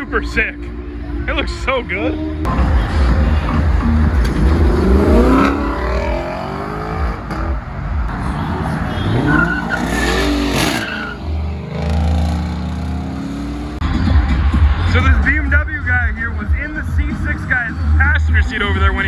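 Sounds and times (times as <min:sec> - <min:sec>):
car engine revving: 0:02.4 - 0:15.3
tyres squealing: 0:02.5 - 0:13.8.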